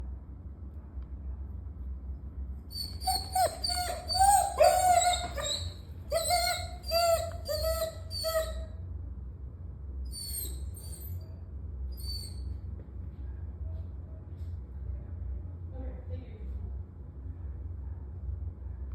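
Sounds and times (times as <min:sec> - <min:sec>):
puppy whimpering: 0:02.7 - 0:08.7, 0:10.1 - 0:11.2.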